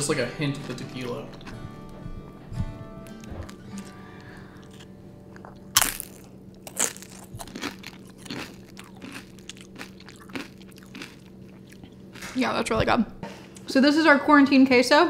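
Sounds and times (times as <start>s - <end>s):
chewing with small crunches: 0.5s - 2.1s, 3.0s - 12.4s
chip crunching: 3.0s - 12.4s.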